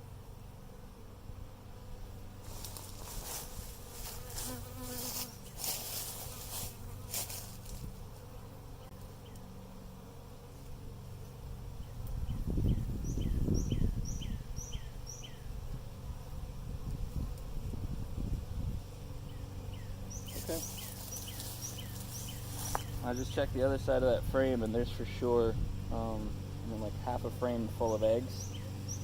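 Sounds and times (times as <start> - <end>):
honeybees buzzing: 0.0 - 29.0
rustling: 2.4 - 8.3, 20.2 - 23.0.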